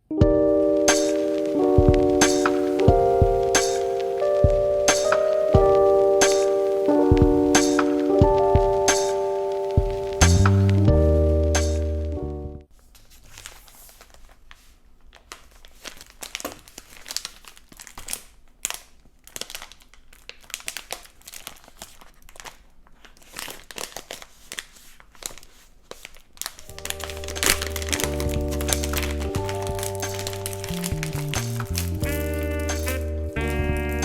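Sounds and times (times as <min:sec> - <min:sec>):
plastic packaging crinkling: 0:12.9 - 0:33.2.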